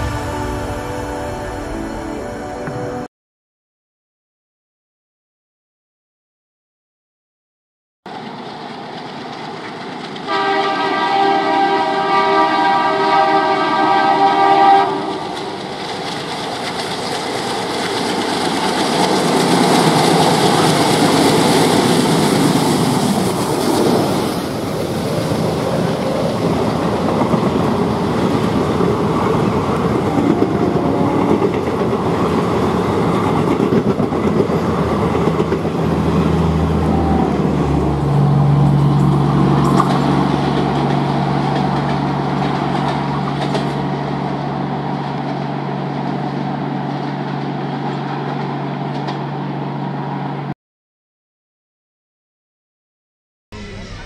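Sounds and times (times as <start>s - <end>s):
train rushing past: 0.0s - 3.1s, 8.1s - 50.5s
wheel and rail clatter: 8.1s - 10.5s, 15.0s - 49.3s
locomotive horn blast: 10.3s - 15.4s, 36.3s - 39.8s.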